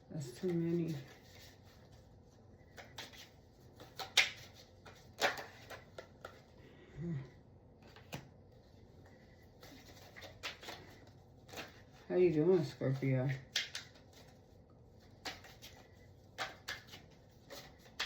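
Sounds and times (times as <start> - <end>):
cards being shuffled: 0.3 - 6.6, 7.8 - 18.0
person murmuring: 6.8 - 7.4.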